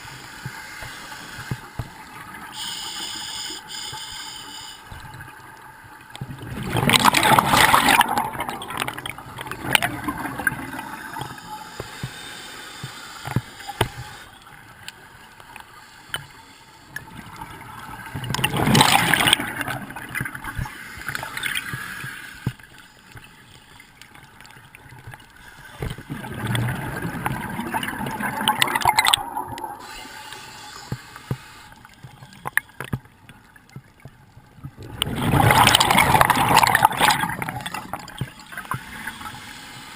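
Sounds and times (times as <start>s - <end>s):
underwater water noise: 0.0s - 39.9s
regulator bubbles underwater: 6.1s - 11.5s, 17.0s - 21.7s, 25.8s - 29.9s, 33.7s - 39.2s.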